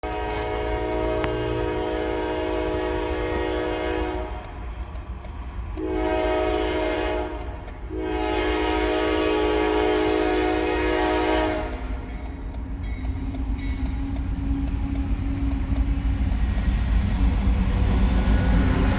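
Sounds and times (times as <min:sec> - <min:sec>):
locomotive air horn blasts: 0:00.0 - 0:04.6, 0:05.8 - 0:12.1
locomotive low rumble: 0:00.0 - 0:18.9.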